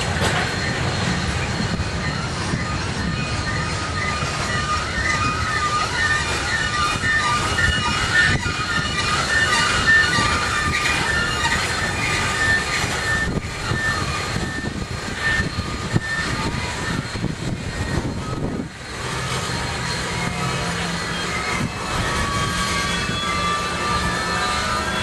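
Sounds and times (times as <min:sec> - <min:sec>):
low hum: 0:00.0 - 0:25.0
short high squealing tones: 0:00.0 - 0:25.0
standing train rumble and hiss: 0:00.0 - 0:25.0.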